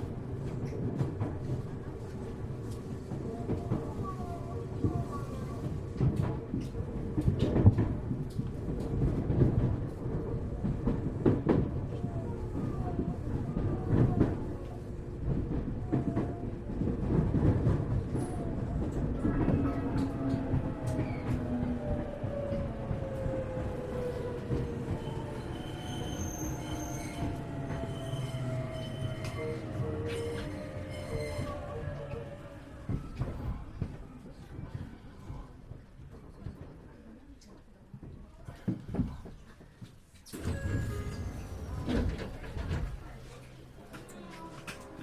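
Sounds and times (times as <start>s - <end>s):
train wheels rumbling on rails: 0.0s - 45.0s
train motor whine: 40.3s - 43.0s.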